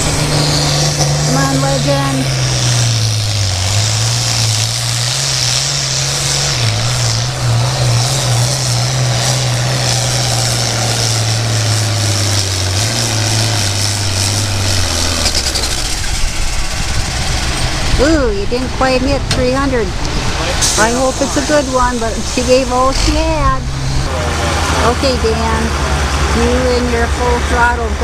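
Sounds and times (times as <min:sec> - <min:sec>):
tractor engine running hard: 0:00.0 - 0:28.0.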